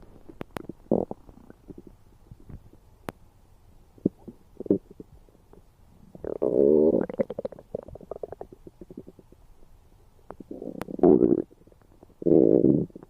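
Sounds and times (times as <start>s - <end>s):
stomach gurgling and rumbling: 0.0s - 2.8s, 4.0s - 9.4s, 10.3s - 13.0s
small pops and clicks: 0.3s - 0.8s.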